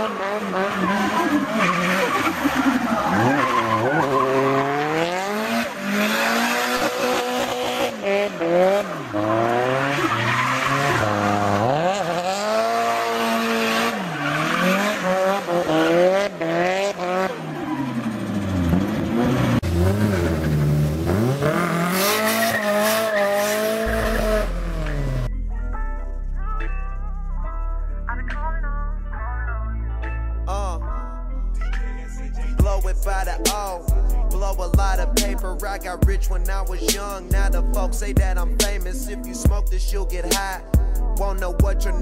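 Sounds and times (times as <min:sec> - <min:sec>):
car engine revving hard: 0:00.0 - 0:25.3
tyres squealing: 0:00.5 - 0:05.2.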